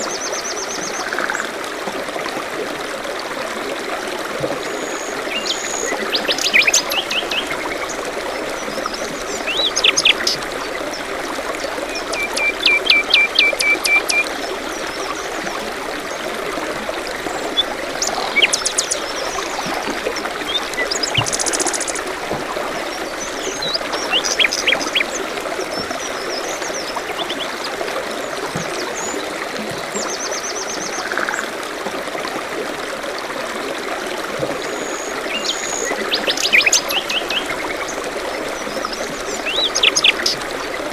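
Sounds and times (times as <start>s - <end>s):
stream trickling: 0.0s - 40.9s
songbirds chirping and trilling: 17.4s - 27.7s.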